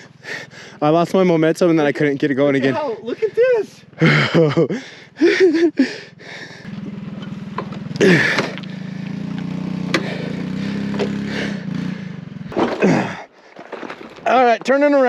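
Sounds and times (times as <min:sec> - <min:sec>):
mini bike engine running: 0:02.6 - 0:12.6.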